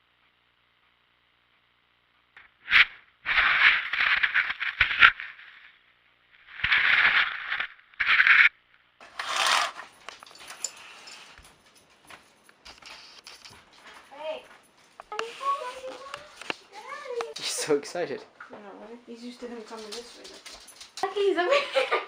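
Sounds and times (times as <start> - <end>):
scraping strokes: 9.0 - 9.9.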